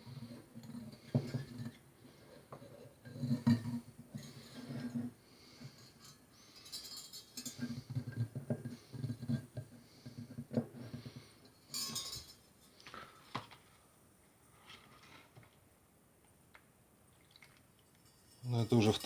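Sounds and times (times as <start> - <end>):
small metal parts clinking: 5.8 - 7.8, 11.6 - 12.5, 18.0 - 19.0.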